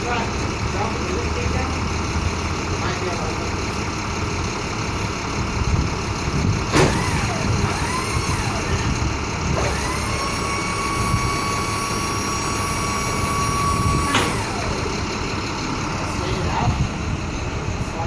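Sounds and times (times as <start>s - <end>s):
truck engine idling: 0.0s - 18.0s
high-pitched squeal and whine: 9.6s - 14.9s.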